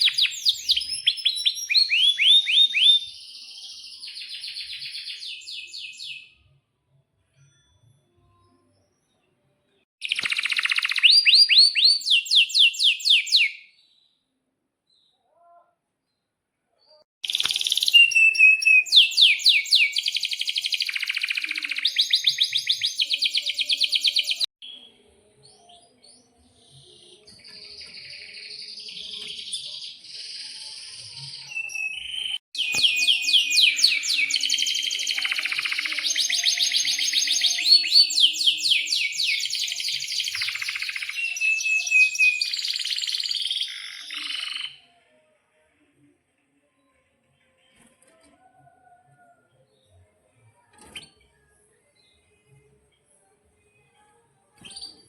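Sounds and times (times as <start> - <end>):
canary singing trills: 0.0 - 6.4, 10.0 - 13.7, 17.2 - 24.8, 26.2 - 45.0.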